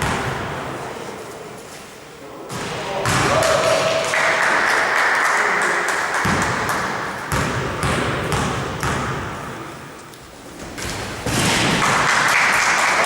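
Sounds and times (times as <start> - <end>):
sharp thumps in a hall: 0.0 - 1.2, 2.5 - 4.3, 6.1 - 12.8.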